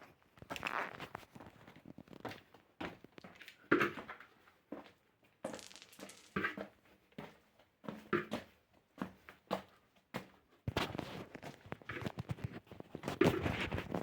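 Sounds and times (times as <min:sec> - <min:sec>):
footsteps: 0:05.5 - 0:06.5.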